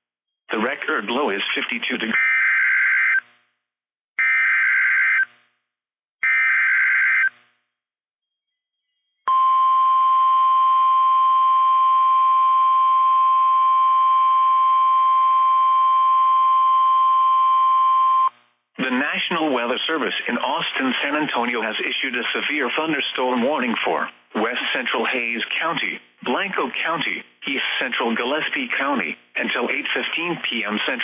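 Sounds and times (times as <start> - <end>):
steady alarm tone: 4.2 - 5.4, 6.2 - 7.5.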